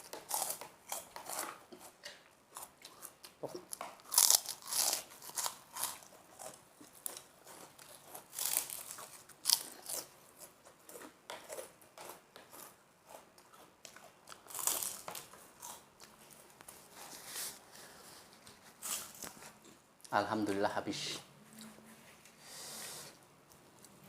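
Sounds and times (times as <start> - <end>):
chewing: 0.0 - 16.8
crunching crackers: 0.0 - 16.9.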